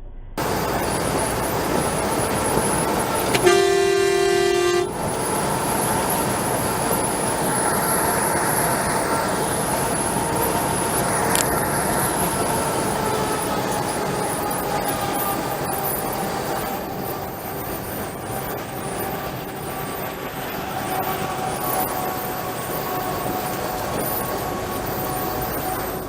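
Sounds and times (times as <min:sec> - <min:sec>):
vehicle and road noise: 0:00.4 - 0:26.0
vehicle horn blast: 0:01.2 - 0:05.2.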